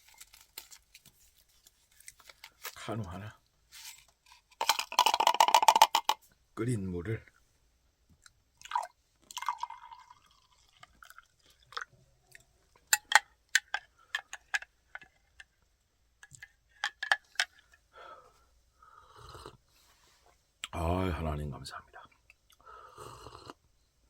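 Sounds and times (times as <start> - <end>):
water poured into a cup: 8.6 - 11.9.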